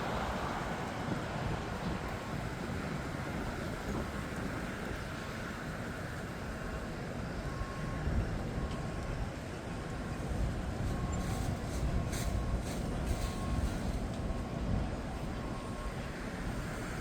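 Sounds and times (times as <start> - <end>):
low rumble of distant engines: 0.0 - 17.0
faint short beeps: 10.9 - 14.0.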